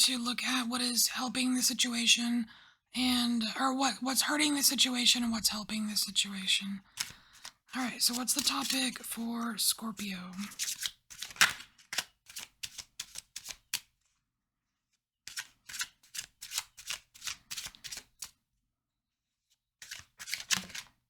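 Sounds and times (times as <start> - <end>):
cards being shuffled: 6.9 - 9.2, 10.3 - 14.0, 15.3 - 18.4, 19.8 - 21.0.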